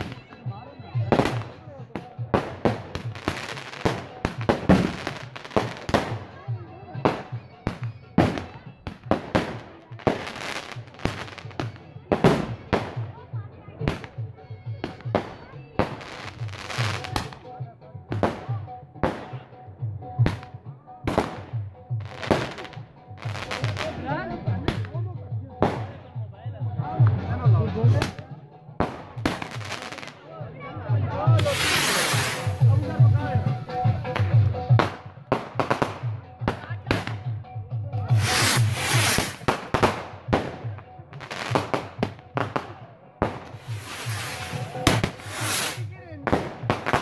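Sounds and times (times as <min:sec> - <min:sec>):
fireworks bangs and pops: 0:00.0 - 0:19.5, 0:20.2 - 0:25.0, 0:25.6 - 0:26.2, 0:27.0 - 0:30.2, 0:31.2 - 0:47.0
music with steady beat: 0:00.0 - 0:47.0
fireworks bangs: 0:02.4 - 0:06.2, 0:31.4 - 0:37.2, 0:38.1 - 0:47.0
fireworks hiss: 0:31.4 - 0:33.1, 0:38.1 - 0:39.7, 0:43.5 - 0:45.9.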